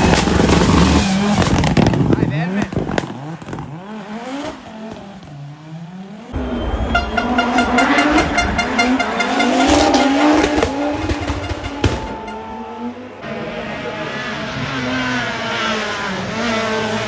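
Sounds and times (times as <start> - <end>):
rally car engine revving: 0.0 - 17.0
tyres squealing: 6.4 - 13.1.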